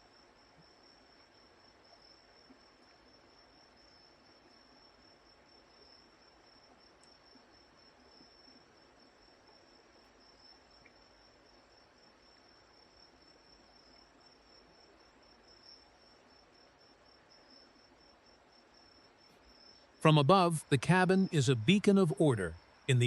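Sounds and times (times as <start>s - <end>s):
low hiss: 9.3s - 23.0s.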